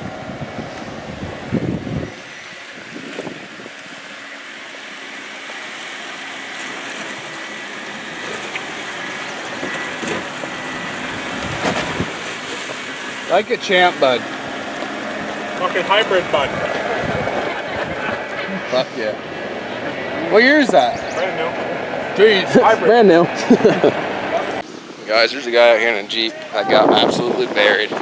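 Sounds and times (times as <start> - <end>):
water sloshing and splashing: 2.2 - 24.6.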